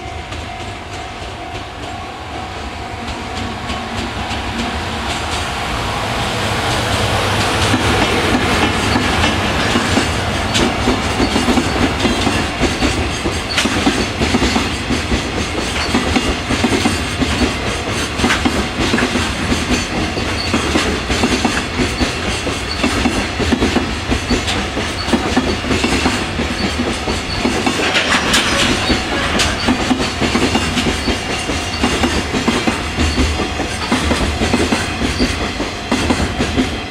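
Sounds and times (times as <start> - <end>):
freight train wheels clacking: 0.0 - 36.9.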